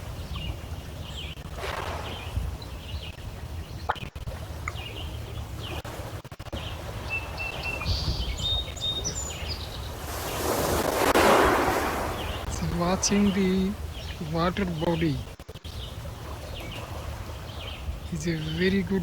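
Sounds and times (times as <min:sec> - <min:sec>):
low rumble of wind and water: 0:00.0 - 0:19.0
small birds chirping: 0:00.0 - 0:19.0
whistled bird notes: 0:06.6 - 0:19.0.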